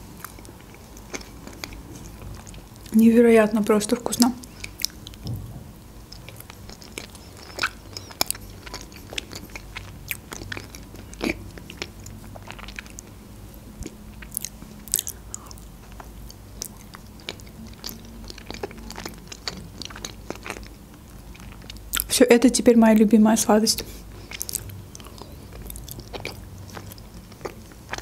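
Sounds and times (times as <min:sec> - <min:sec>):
person chewing: 0:00.0 - 0:02.9, 0:04.4 - 0:05.2, 0:06.0 - 0:22.1, 0:23.8 - 0:28.0
low steady hum: 0:00.0 - 0:28.0
mouth clicks and smacks: 0:06.1 - 0:13.1.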